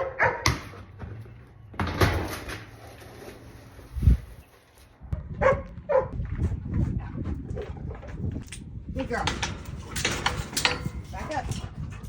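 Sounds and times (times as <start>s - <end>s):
dog barking: 0.0s - 0.5s, 5.4s - 6.2s.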